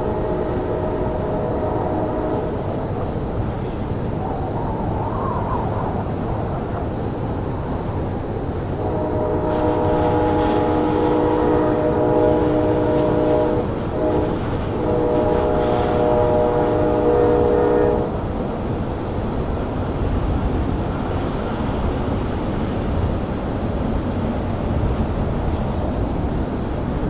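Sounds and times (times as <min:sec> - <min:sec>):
locomotive horn blasts: 0:00.0 - 0:02.6, 0:08.8 - 0:18.2
moving train rumble: 0:00.0 - 0:27.0.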